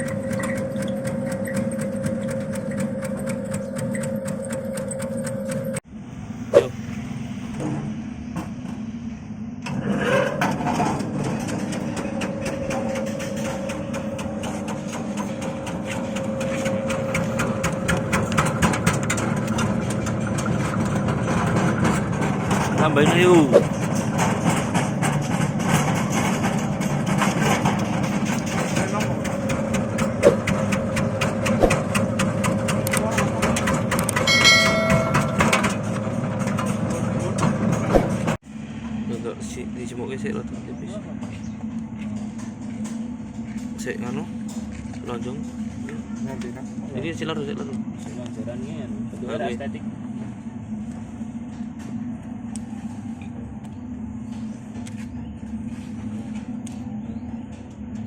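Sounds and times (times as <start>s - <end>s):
slicing machine motor drone: 0.0s - 7.6s, 9.6s - 39.0s.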